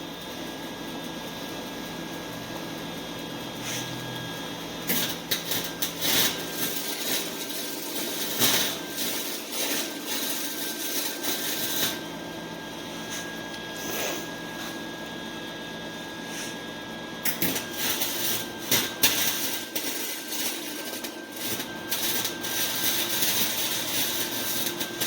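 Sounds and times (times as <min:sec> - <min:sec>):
welding arc crackling: 0:04.6 - 0:14.2, 0:17.2 - 0:25.0
steady background hum: 0:11.0 - 0:19.2.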